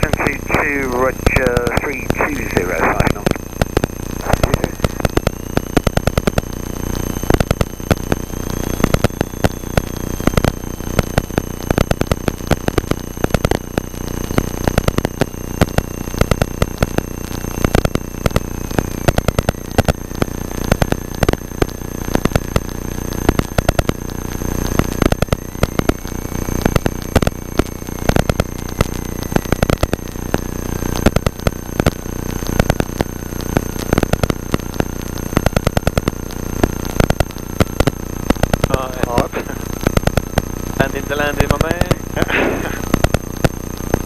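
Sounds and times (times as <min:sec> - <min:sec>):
high-pitched whines: 0:00.0 - 0:05.8, 0:38.4 - 0:43.2
crackling electrical interference: 0:00.0 - 0:44.0.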